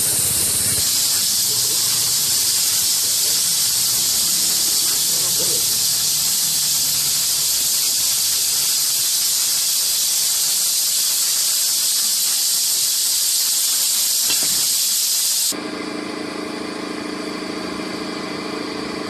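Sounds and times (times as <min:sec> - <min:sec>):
car engine idling: 0:00.0 - 0:08.9
loud steady hiss: 0:00.0 - 0:15.6.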